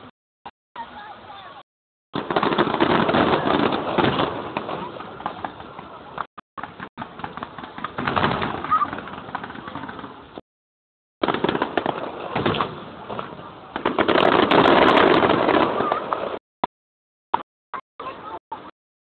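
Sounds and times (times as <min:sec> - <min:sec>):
fireworks crackling and popping: 0:02.2 - 0:10.4, 0:11.2 - 0:16.4.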